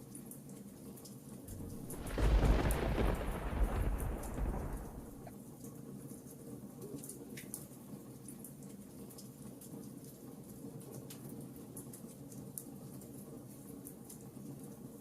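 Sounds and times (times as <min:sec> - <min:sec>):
soft rain patter: 0:00.0 - 0:15.0
wood fire crackling: 0:01.5 - 0:05.3.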